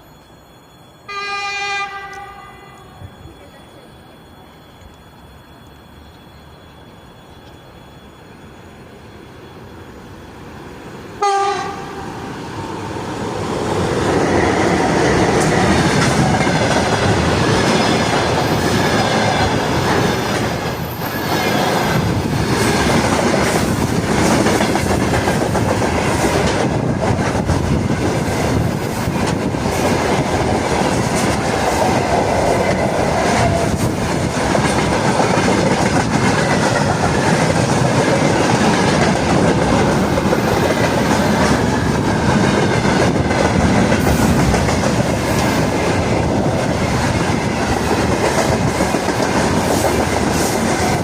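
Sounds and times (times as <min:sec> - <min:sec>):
train rumble: 0:00.0 - 0:51.0
locomotive horn blast: 0:01.1 - 0:03.0, 0:11.2 - 0:12.0.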